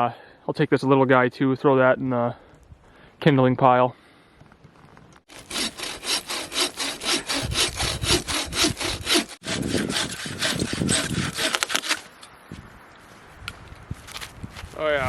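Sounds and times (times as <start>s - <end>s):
bow saw cutting dry wood: 5.3s - 12.3s.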